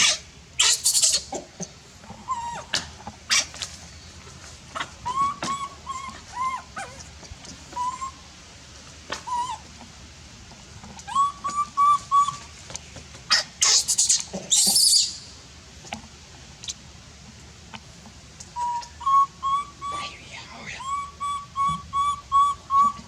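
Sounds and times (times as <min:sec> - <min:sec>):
baby monkey shrill screech: 0:00.0 - 0:01.3, 0:13.3 - 0:15.2
baby monkey whistle-like cries: 0:00.0 - 0:01.3, 0:02.3 - 0:02.7, 0:05.0 - 0:06.7, 0:07.7 - 0:08.2, 0:09.2 - 0:09.6, 0:11.1 - 0:12.5, 0:13.3 - 0:15.2, 0:18.6 - 0:20.1, 0:20.8 - 0:23.0.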